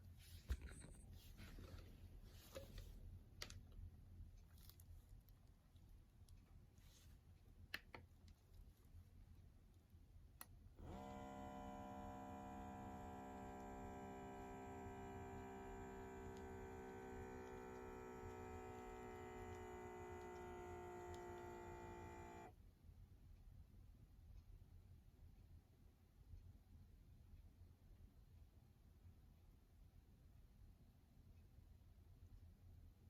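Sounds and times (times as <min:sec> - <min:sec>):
electric air pump whining: 0:10.8 - 0:22.5.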